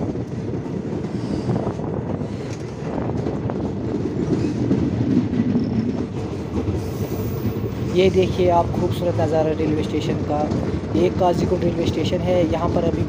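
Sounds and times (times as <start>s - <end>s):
train wheels rumbling on rails: 0.0s - 13.0s
faint rail clicks: 2.4s - 7.8s.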